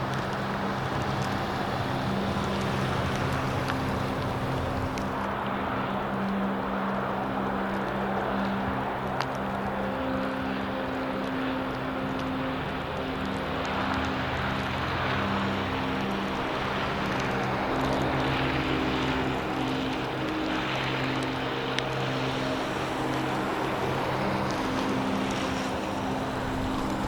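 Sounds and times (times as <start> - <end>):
low engine hum: 0.0 - 9.4
gusty wind: 0.0 - 27.0.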